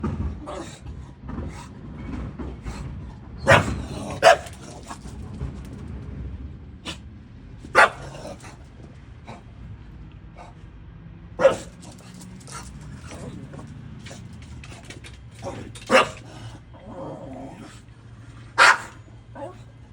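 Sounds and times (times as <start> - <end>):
low rumble: 0.0 - 19.9
dog barking: 3.4 - 5.2, 7.7 - 8.6, 11.4 - 14.2, 15.4 - 16.5, 18.5 - 19.7.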